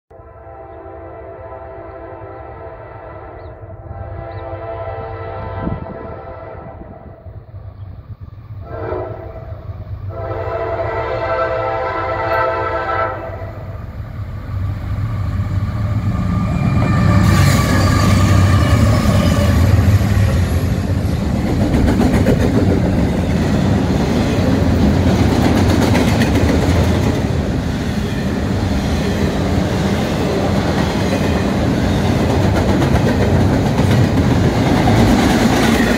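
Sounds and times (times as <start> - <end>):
train air horn blasts: 0.1 - 7.4, 8.6 - 13.8, 16.4 - 20.6
train wheels on rails: 13.6 - 35.9.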